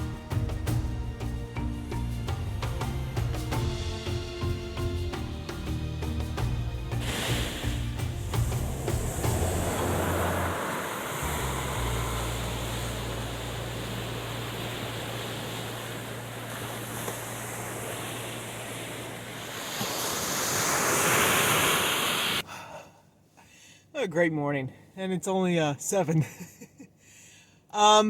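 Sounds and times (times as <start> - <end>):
waves washing onto shore: 6.9 - 22.4
wind rumbling on microphone: 7.6 - 20.8.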